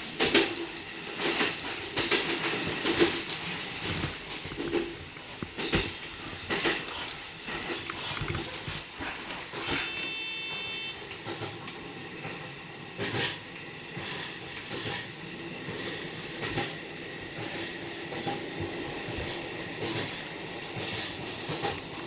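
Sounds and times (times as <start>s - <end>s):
train wheels rumbling on rail: 0.0s - 22.0s
high ringing tone: 9.8s - 11.0s.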